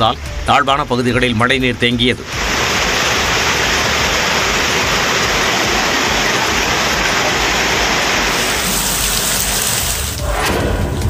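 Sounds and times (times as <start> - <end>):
heavy rain on street: 2.3 - 10.4.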